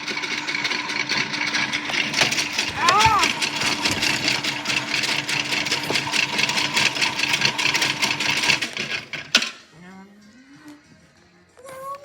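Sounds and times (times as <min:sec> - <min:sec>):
toy washing machine motor humming: 0:00.0 - 0:09.3.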